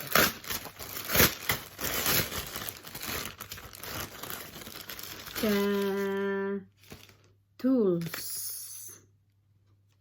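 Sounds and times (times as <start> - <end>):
packaging crinkling and rustling: 0.0 - 7.4.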